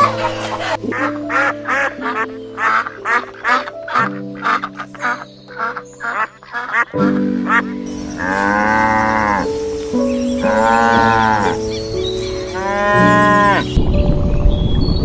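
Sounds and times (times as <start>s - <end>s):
soft background music: 0.0s - 15.0s
cow mooing: 7.9s - 11.7s, 12.5s - 13.8s.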